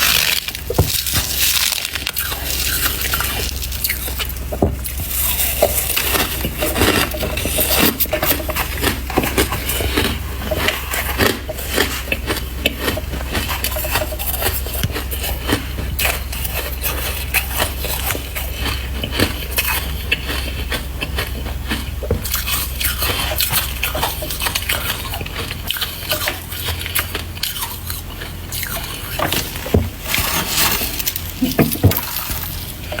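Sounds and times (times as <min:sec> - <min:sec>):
frost being chewed crunching: 0:00.0 - 0:33.0
low steady hum: 0:00.0 - 0:33.0.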